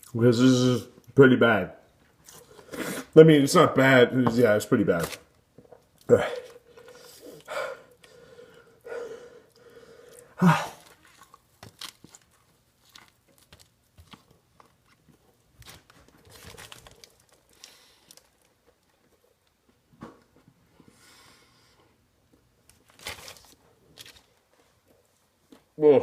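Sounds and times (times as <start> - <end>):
man chewing food: 2.0 - 3.1, 5.5 - 22.8.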